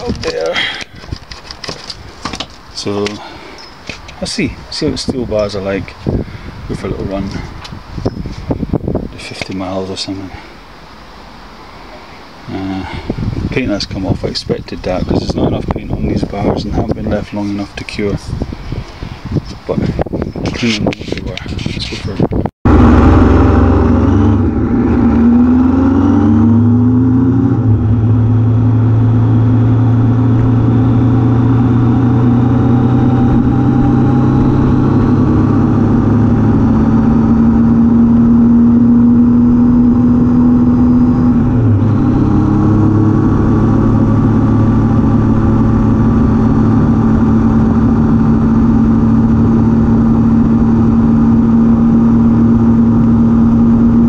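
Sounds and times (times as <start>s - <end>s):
motorcycle engine revving: 22.6s - 54.0s.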